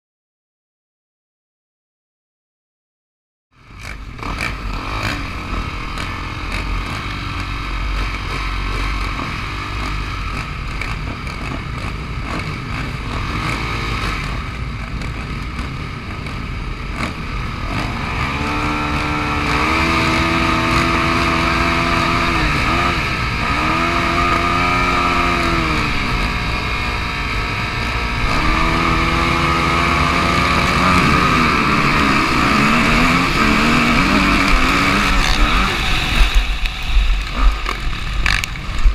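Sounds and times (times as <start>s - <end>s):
motorcycle engine revving: 3.6s - 38.9s.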